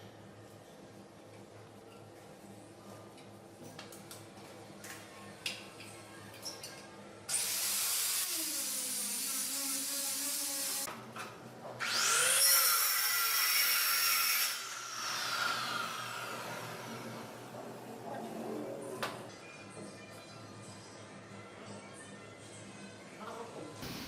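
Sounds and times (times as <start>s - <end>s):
electric power tool cutting wood: 11.8s - 17.1s.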